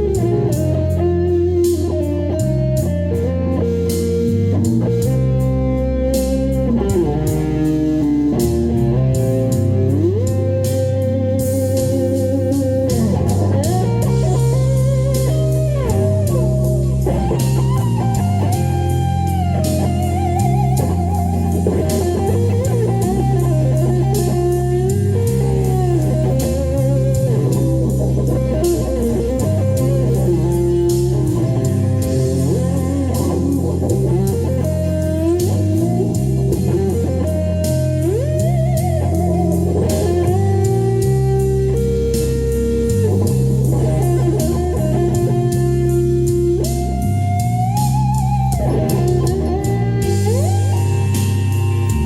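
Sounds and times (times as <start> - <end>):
blues-rock backing track: 0.0 - 52.0
electric guitar lead melody: 0.0 - 52.0
steady beat: 0.0 - 52.0
stepping bass line: 0.0 - 52.0.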